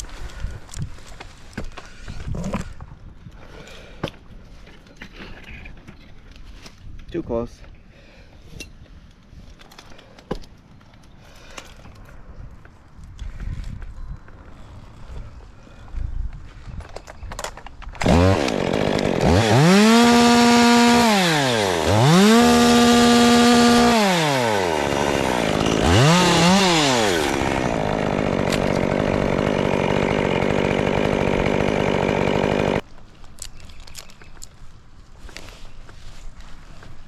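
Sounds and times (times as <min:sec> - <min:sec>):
chainsaw revving: 0:18.0 - 0:32.8.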